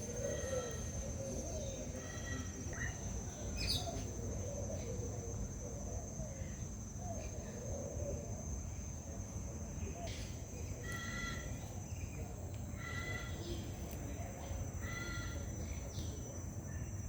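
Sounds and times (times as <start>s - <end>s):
bird calls: 0.0s - 8.2s.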